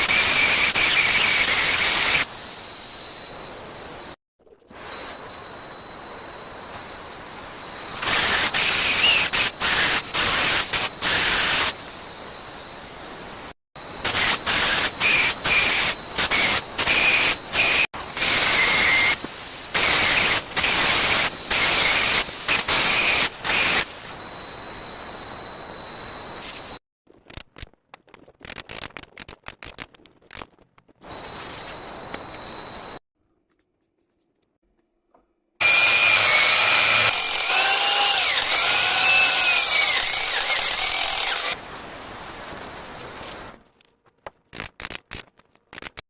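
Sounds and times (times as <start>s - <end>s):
power tool cutting into wall: 0.0s - 2.3s, 14.1s - 19.2s, 35.6s - 41.6s.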